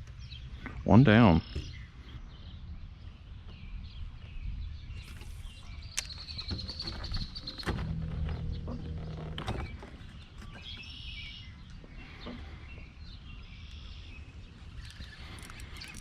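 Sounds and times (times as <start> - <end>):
steady low rumble: 7.2 - 16.0.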